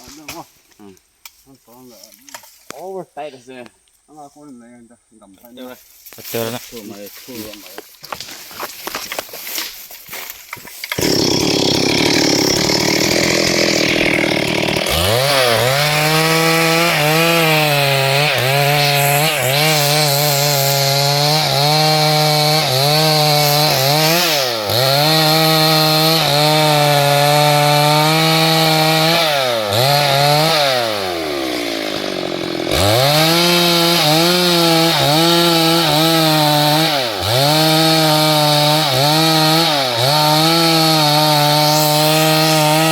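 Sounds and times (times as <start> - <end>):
chainsaw cutting wood: 10.6 - 42.9.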